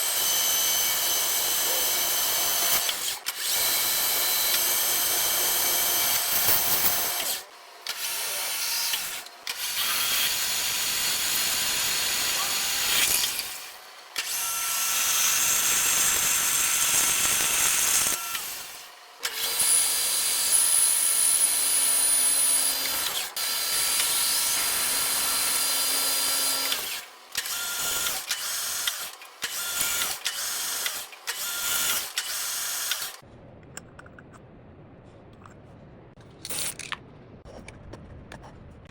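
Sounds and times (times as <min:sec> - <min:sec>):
machine tools cutting metal: 0:00.0 - 0:20.2.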